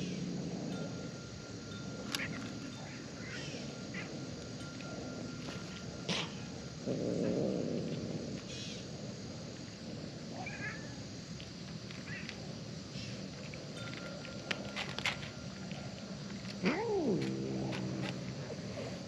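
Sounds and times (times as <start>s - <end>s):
cat sounds: 10.4s - 11.0s, 16.5s - 18.6s.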